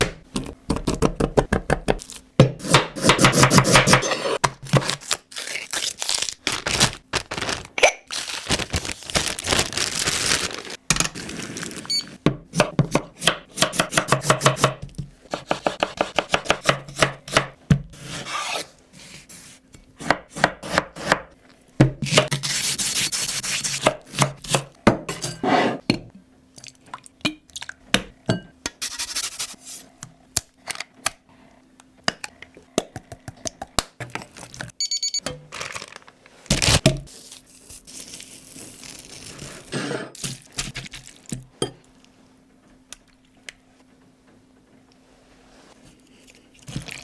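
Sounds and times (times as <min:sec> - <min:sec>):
knife chopping on cutting board: 0:00.0 - 0:04.6, 0:12.3 - 0:18.6, 0:20.0 - 0:22.6.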